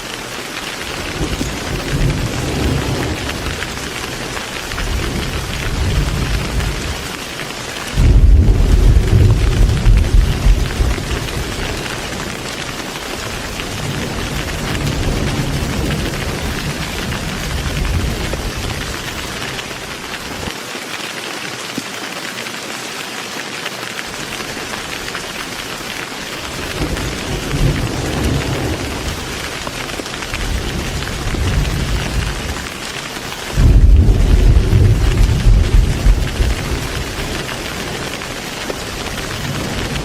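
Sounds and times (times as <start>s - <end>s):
heavy rain falling: 0.0s - 40.0s
thunder rumbling: 0.8s - 7.2s, 7.9s - 20.5s, 26.4s - 40.0s
loud thunderclap: 1.0s - 3.9s, 4.7s - 7.1s, 7.9s - 12.3s, 26.6s - 32.6s, 33.5s - 40.0s.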